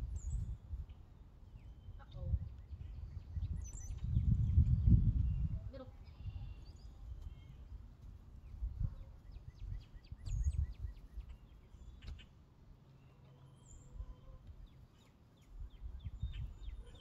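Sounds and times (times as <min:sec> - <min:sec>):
wind rumbling on microphone: 0:00.0 - 0:12.2, 0:15.4 - 0:17.0
small birds chirping: 0:00.0 - 0:17.0.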